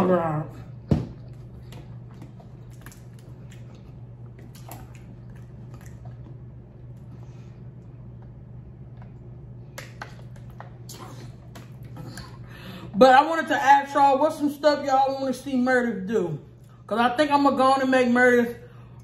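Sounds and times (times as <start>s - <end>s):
low hum: 0.0s - 17.0s
chewing and wet mouth sounds: 1.2s - 13.0s.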